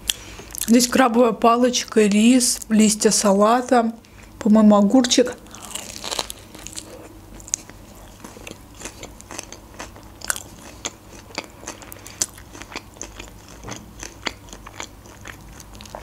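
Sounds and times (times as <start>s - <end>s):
crisp chewing crunches: 5.4s - 16.0s.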